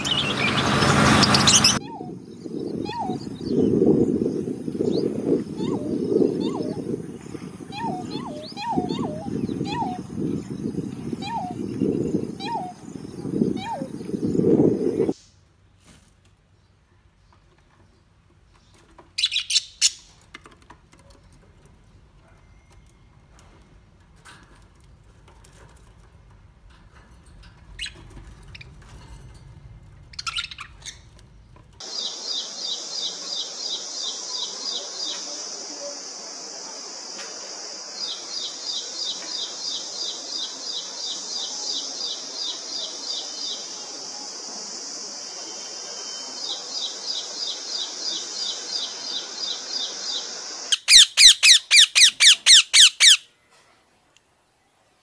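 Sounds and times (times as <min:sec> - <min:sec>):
bird singing rapid high notes: 0:00.0 - 0:03.6, 0:45.6 - 0:53.3
steady high hiss: 0:31.8 - 0:51.8
faint budgerigar chirps: 0:45.6 - 0:53.3
harsh parakeet squawks: 0:50.7 - 0:53.3.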